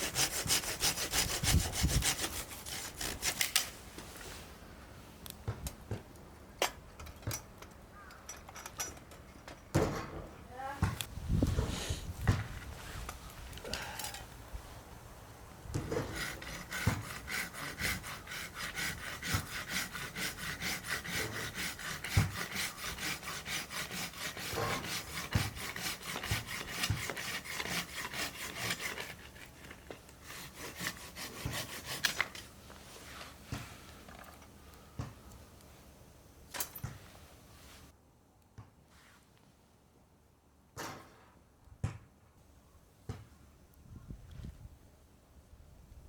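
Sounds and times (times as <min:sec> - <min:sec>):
hand tool scraping: 0:00.0 - 0:04.4, 0:15.7 - 0:35.4.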